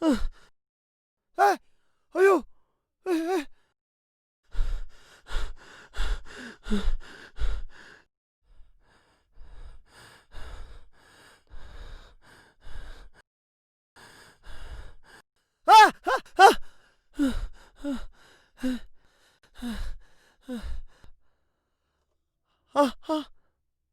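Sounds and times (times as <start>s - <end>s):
loud voiced cry: 2.2s - 2.4s, 15.7s - 16.6s
person panting heavily: 4.5s - 8.1s, 8.8s - 13.2s, 14.0s - 21.2s.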